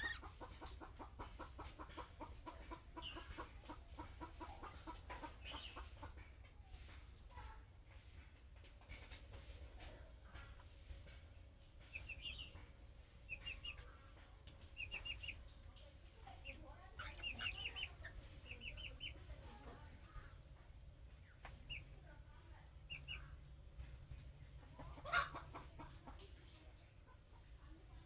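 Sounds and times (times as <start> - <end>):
budgerigar chirping: 0.0 - 0.3.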